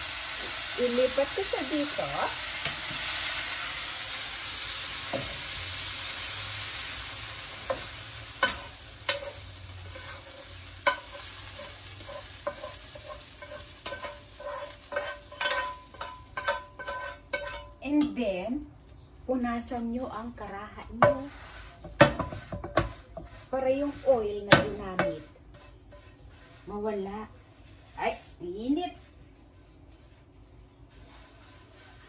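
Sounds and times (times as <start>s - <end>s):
chicken sizzling in hot oil: 0.0s - 18.1s, 21.0s - 26.6s
metal utensil clinking on pan: 7.7s - 18.2s.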